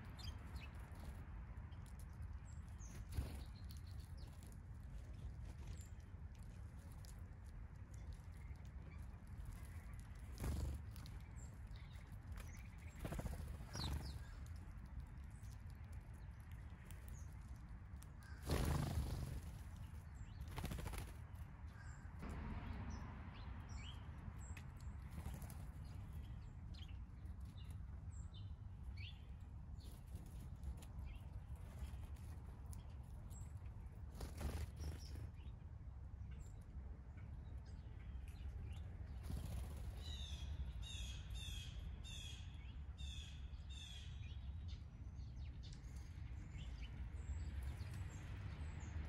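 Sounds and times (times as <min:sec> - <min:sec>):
bird wing flutters: 0:10.2 - 0:11.2, 0:12.4 - 0:14.4, 0:18.2 - 0:21.9, 0:34.0 - 0:35.3, 0:39.2 - 0:40.0.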